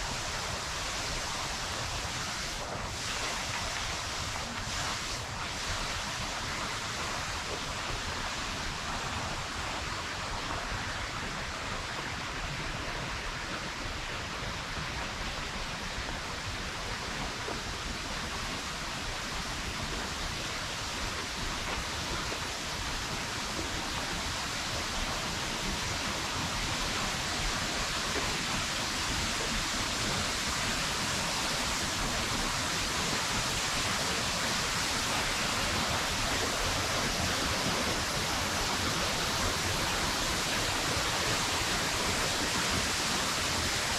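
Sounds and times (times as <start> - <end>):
waterfall rushing: 22.3 - 43.9.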